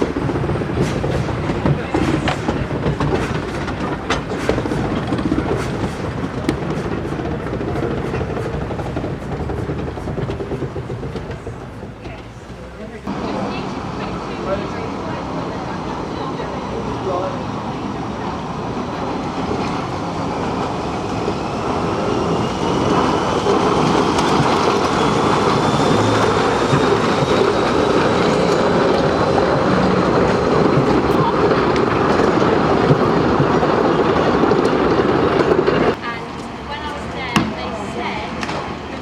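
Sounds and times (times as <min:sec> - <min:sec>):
train running on track: 0:00.0 - 0:39.0.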